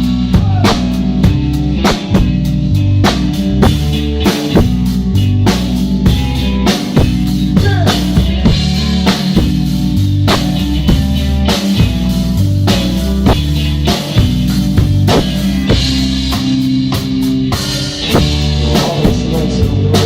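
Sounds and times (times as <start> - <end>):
bass and guitar: 0.0 - 20.0
drum kit steady beat: 0.0 - 20.0.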